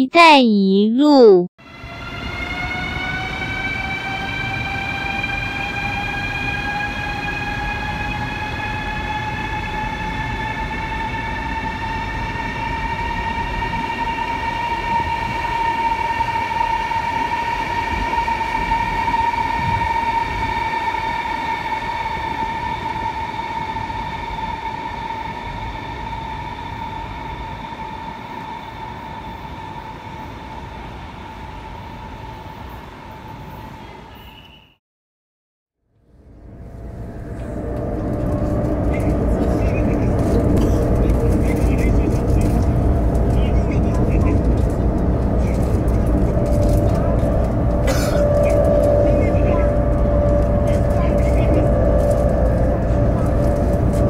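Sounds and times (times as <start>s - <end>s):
electric train motors whining: 36.2s - 54.0s
train wheels rumbling: 36.2s - 54.0s.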